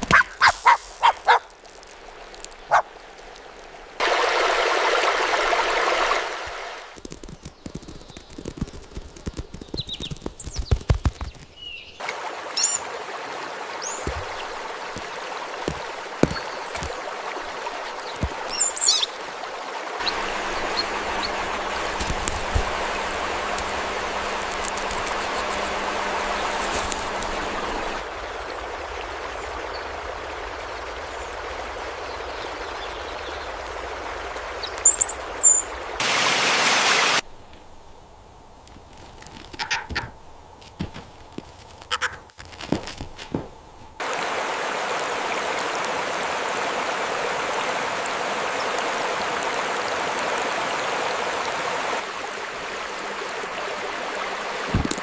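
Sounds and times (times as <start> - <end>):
stream running water: 0.0 - 55.0
high bird chirps: 34.6 - 35.7.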